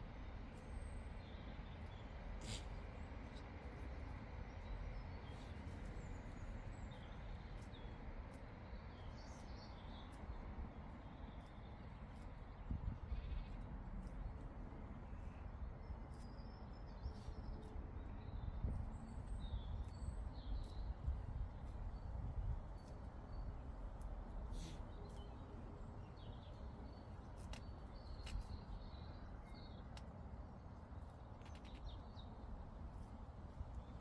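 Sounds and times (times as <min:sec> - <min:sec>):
wind rumble on microphone: 0:09.4 - 0:34.0.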